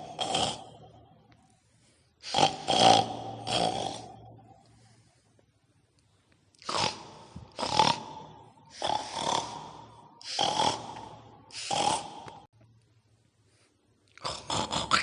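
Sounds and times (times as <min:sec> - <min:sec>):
pig-like snorting grunts: 0:00.0 - 0:00.9, 0:02.2 - 0:04.5, 0:06.6 - 0:12.5, 0:14.2 - 0:15.0.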